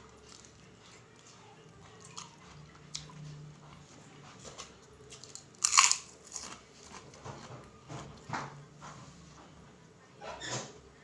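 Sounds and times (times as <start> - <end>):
cracker crunch: 0.0 - 3.1, 4.4 - 7.2.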